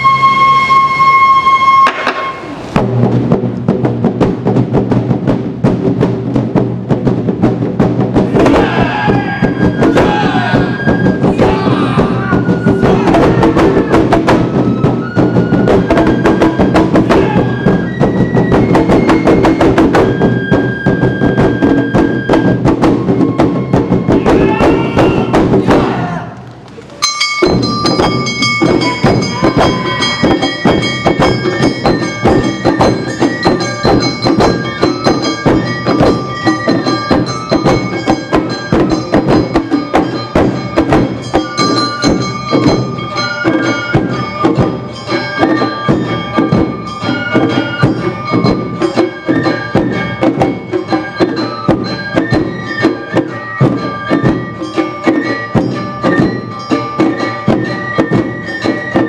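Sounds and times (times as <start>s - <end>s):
flutes: 0.0s - 2.8s, 8.3s - 26.5s, 27.4s - 59.0s
shamisen: 0.0s - 3.9s, 5.6s - 59.0s
drums beating: 0.0s - 59.0s
struck bell: 27.0s - 59.0s.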